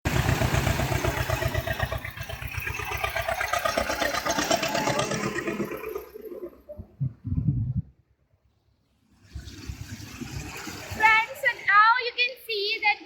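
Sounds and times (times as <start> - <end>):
vehicle engine running: 0.1 - 7.6.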